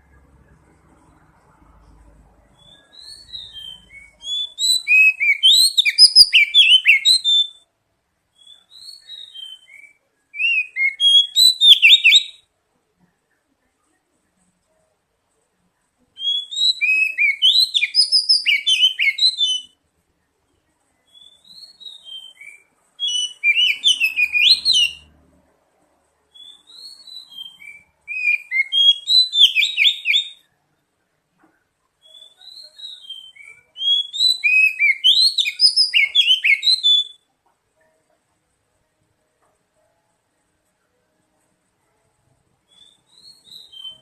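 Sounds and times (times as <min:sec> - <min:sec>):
bird whistling song: 0:02.4 - 0:07.6, 0:08.3 - 0:12.5, 0:16.2 - 0:19.8, 0:21.0 - 0:25.1, 0:26.3 - 0:30.5, 0:32.0 - 0:37.3, 0:42.6 - 0:44.0.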